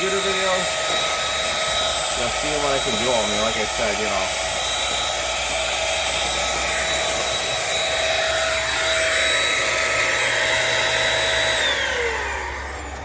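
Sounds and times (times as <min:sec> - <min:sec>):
stick vacuum whining: 0:00.0 - 0:13.0
vacuum motor winding down: 0:00.0 - 0:13.0.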